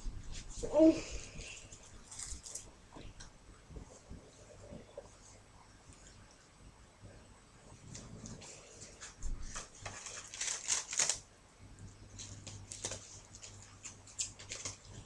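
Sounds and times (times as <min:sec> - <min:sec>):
stiff card rustling and scratching: 0:08.8 - 0:11.2.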